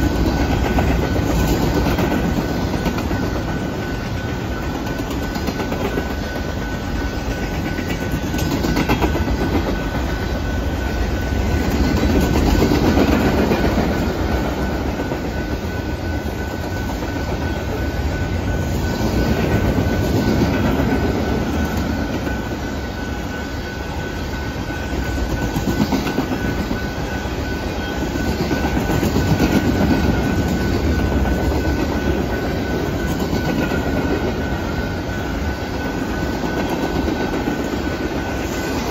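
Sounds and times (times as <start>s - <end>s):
freight train wheels clacking on rails: 0.0s - 38.9s.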